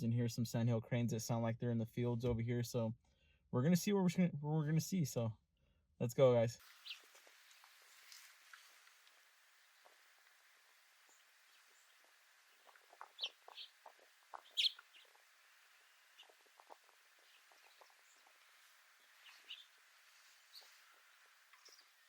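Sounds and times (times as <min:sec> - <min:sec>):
birds chirping: 0:06.7 - 0:08.1, 0:08.9 - 0:22.0
faint scattered clicks: 0:21.4 - 0:22.0.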